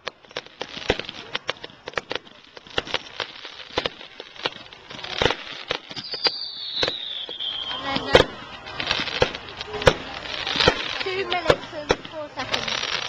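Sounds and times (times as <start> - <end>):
fireworks bangs and crackles: 0.0 - 13.0
falling firework whistle: 4.9 - 11.6.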